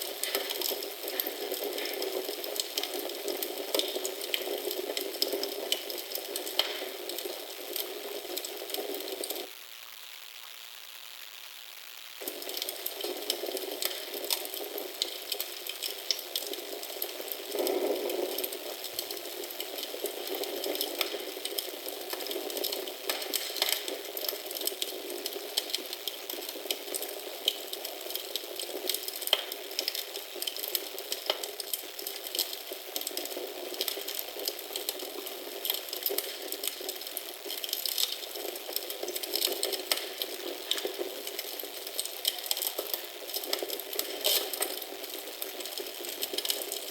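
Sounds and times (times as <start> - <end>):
wood fire crackling: 0.0 - 46.9.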